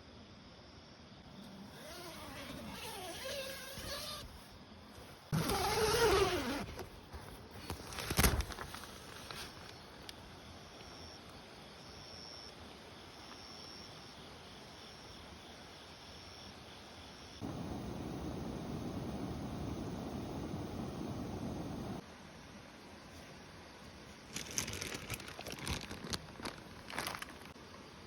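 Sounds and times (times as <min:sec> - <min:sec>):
insect chirping: 0:00.0 - 0:28.0
steady rush of noise: 0:17.4 - 0:22.0.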